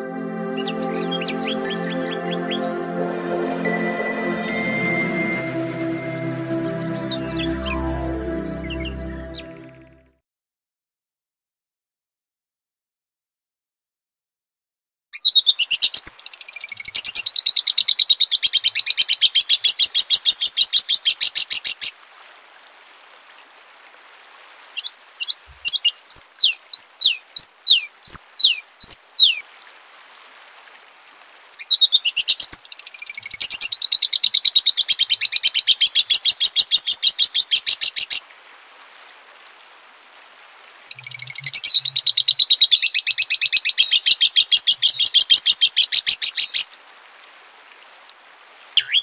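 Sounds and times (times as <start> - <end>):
down-slurred whistled bird notes: 0.0 - 9.6, 41.0 - 45.0, 48.8 - 49.0
songbird rapid trill: 40.9 - 46.6.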